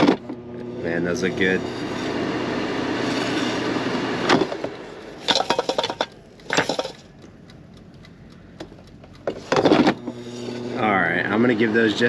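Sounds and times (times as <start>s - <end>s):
pan and utensils clinking: 5.2s - 7.0s
pan clanking: 5.2s - 7.2s.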